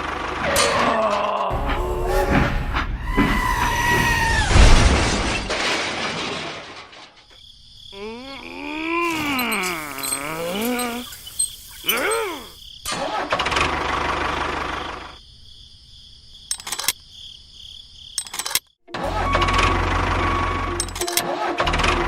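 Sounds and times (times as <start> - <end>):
engine rumbling: 1.5 - 5.7
sharp clicks: 16.5 - 17.0, 18.2 - 18.7.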